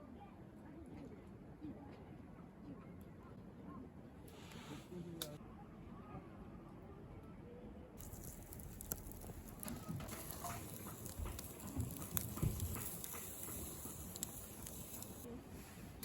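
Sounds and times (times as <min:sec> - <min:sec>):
steady hiss: 0:08.0 - 0:16.0
light knocks and clatter: 0:08.1 - 0:15.3.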